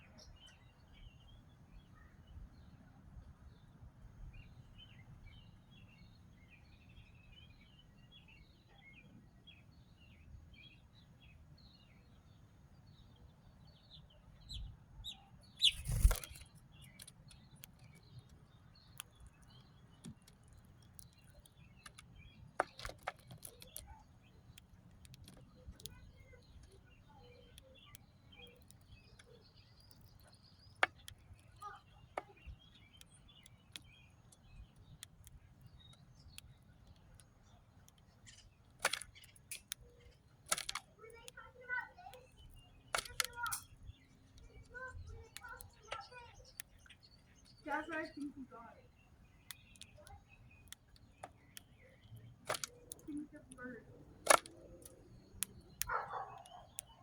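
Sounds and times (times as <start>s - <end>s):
small birds chirping: 0.0s - 57.0s
sharp clicks: 15.6s - 26.8s, 27.5s - 48.3s, 49.3s - 57.0s.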